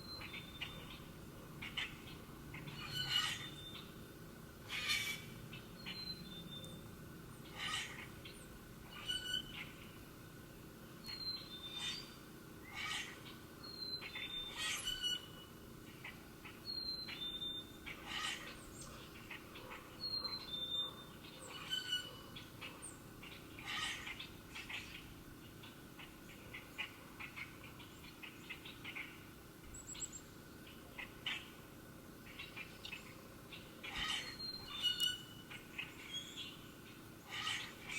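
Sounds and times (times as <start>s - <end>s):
bird chips and calls: 32.3s - 37.9s.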